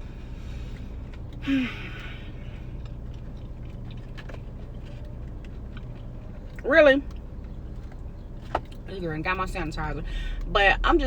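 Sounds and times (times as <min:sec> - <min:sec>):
car engine idling: 0:00.0 - 0:11.0
person sighing: 0:01.4 - 0:02.3.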